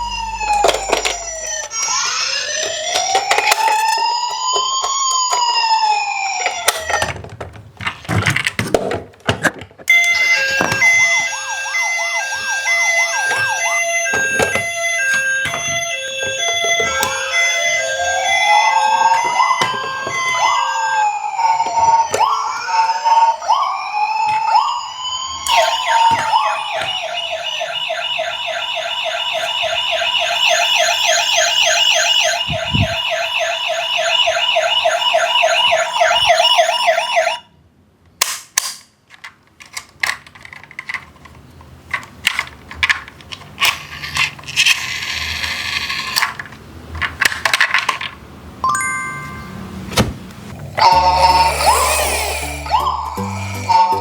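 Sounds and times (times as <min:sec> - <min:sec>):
fast warbling siren: 0:00.0 - 0:07.1, 0:09.9 - 0:37.5, 0:50.6 - 0:54.0
emergency sirens wailing: 0:00.0 - 0:07.2, 0:09.9 - 0:37.6, 0:50.6 - 0:54.0.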